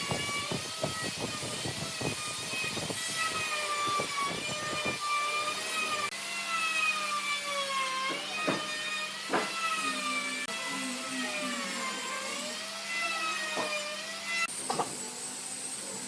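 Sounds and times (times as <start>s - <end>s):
power tool motor whining: 0.0s - 16.0s
sharp knocks: 9.3s - 9.6s.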